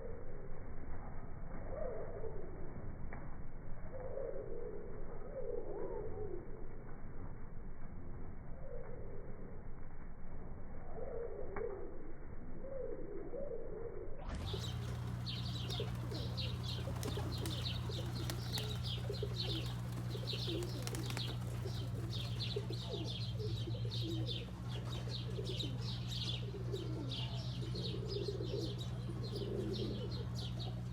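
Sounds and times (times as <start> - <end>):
low hum: 0.0 - 30.9
pigeons cooing: 14.3 - 30.9.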